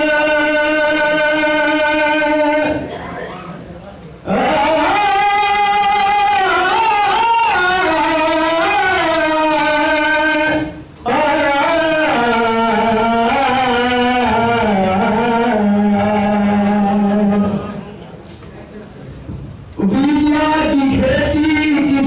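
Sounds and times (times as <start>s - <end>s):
man singing long notes: 4.3s - 17.8s.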